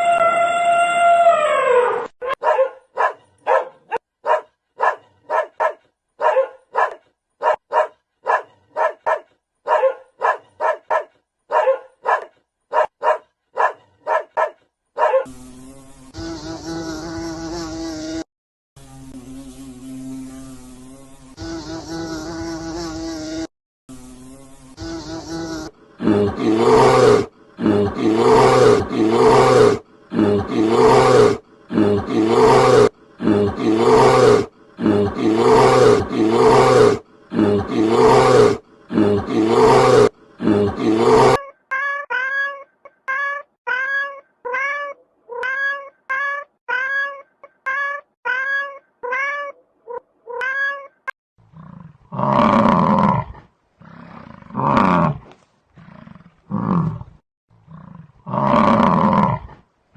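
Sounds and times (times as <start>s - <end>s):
harsh animal calls: 24.8s - 42.2s.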